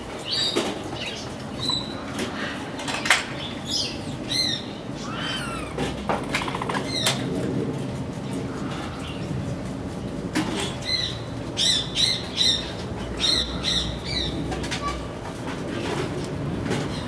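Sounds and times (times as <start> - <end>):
capybara chirping calls: 4.4 - 7.2.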